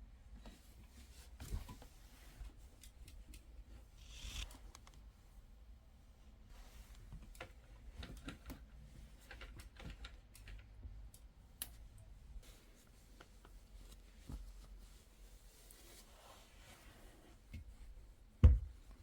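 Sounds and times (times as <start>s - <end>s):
light clicks of objects handled: 0.3s - 5.4s, 6.4s - 14.9s.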